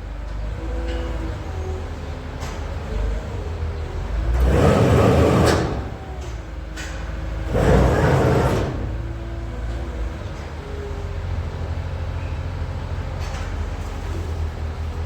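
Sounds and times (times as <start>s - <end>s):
loud rushing burst: 7.5s - 9.2s.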